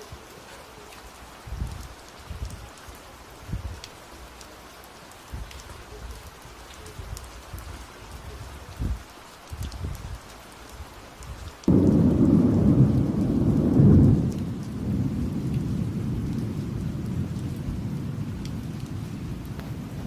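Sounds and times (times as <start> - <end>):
rain pattering: 0.0 - 20.0
thunder rumbling: 11.7 - 20.0.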